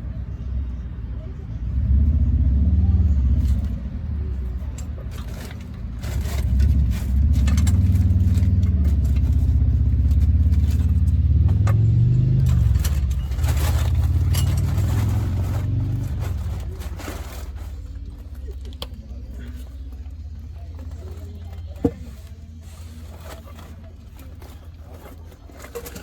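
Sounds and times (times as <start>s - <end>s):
motor vehicle engine running: 0.0s - 26.0s.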